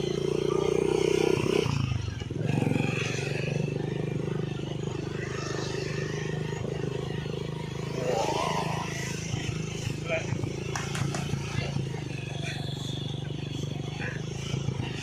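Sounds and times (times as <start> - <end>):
vehicle engine running and revving: 0.0 - 15.0.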